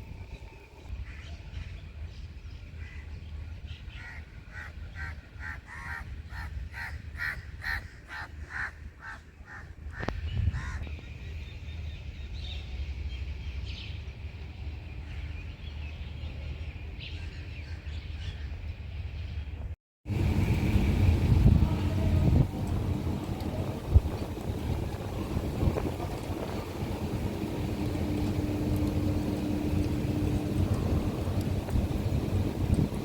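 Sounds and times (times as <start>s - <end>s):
steady low rumble: 20.1s - 33.0s.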